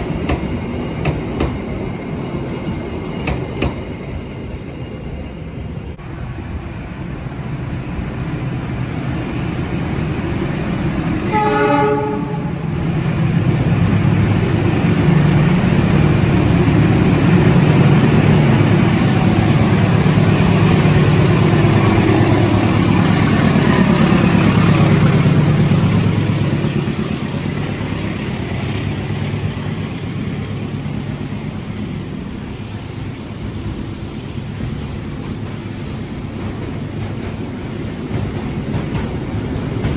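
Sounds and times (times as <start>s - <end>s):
freight train rumbling past: 0.0s - 39.9s
train horn blast: 11.2s - 12.8s.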